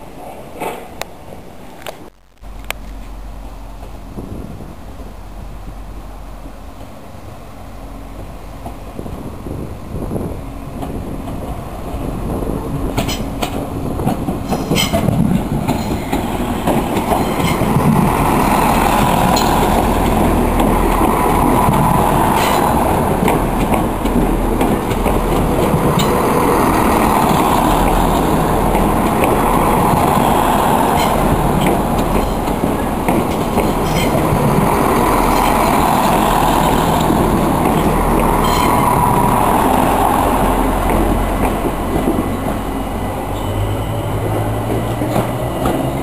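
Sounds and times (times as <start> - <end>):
diesel train engine drone: 0.0 - 46.0
wheels clacking over rail joints: 10.6 - 46.0.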